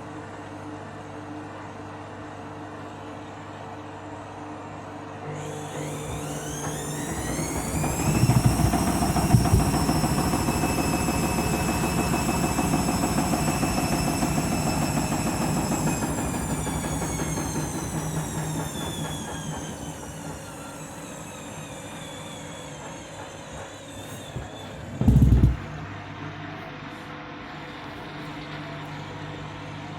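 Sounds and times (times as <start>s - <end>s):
washing machine motor whining: 5.2s - 26.2s
washing machine drum knocking: 7.2s - 14.4s, 25.0s - 25.8s
loud thump: 8.1s - 10.0s, 25.0s - 25.8s.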